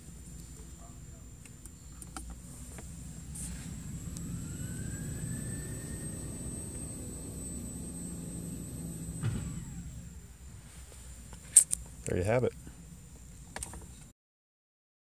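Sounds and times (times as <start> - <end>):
rising whine: 2.9 - 10.6
car engine revving: 3.2 - 10.2.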